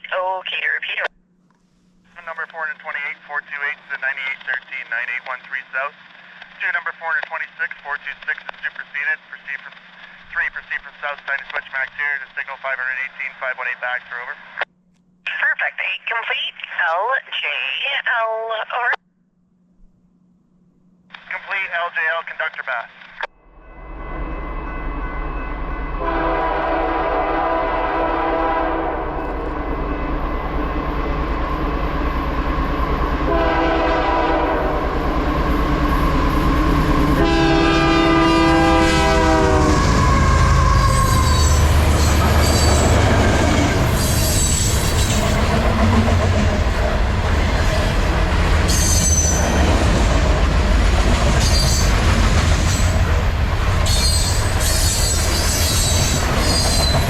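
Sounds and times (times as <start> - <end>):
train rumbling: 23.5 - 57.0
locomotive horn blasts: 25.9 - 29.8, 33.2 - 35.0, 37.1 - 41.7
high wheel squeals: 39.8 - 45.4, 53.8 - 57.0.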